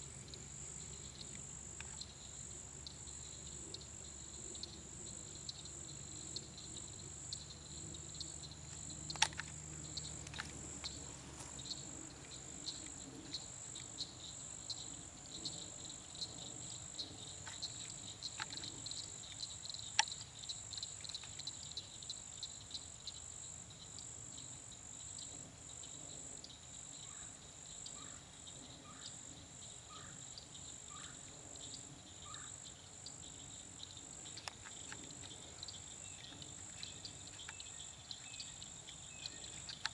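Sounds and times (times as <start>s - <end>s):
crickets buzzing: 0.0s - 39.9s
sharp clicks: 8.7s - 11.0s, 39.5s - 39.9s.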